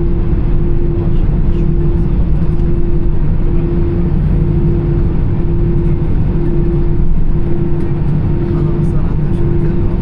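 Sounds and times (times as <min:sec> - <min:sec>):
airplane cabin low rumble: 0:00.0 - 0:10.0
engine hum: 0:00.0 - 0:10.0.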